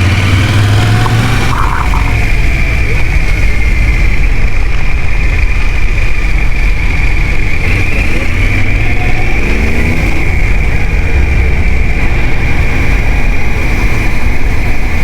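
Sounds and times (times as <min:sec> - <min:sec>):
low rumble: 0:00.0 - 0:07.5
high whine: 0:00.0 - 0:07.6
motorcycle engine running: 0:00.0 - 0:15.0.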